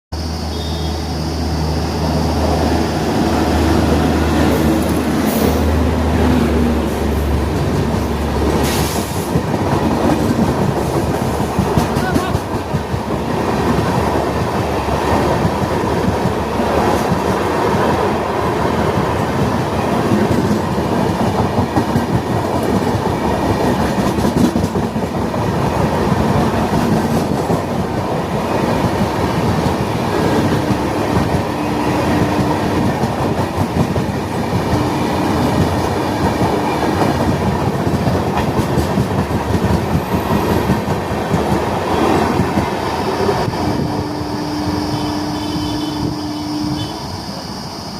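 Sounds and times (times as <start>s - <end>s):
train rumbling over rails: 0.1s - 47.9s
long steady tones: 29.6s - 37.8s, 41.8s - 47.9s.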